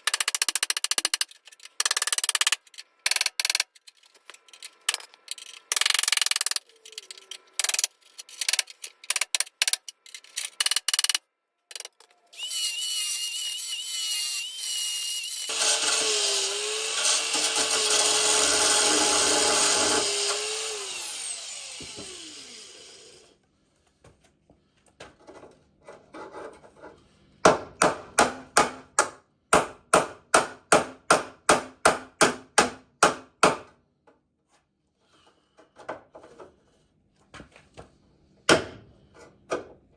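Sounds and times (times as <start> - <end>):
power tool whining: 12.4 - 23.3.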